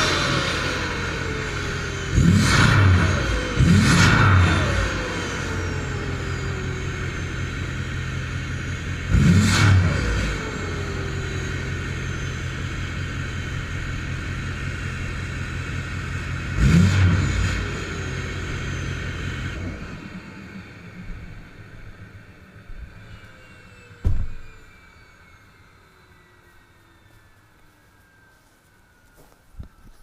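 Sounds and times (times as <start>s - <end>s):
diesel engine idling and revving: 0.0s - 29.2s.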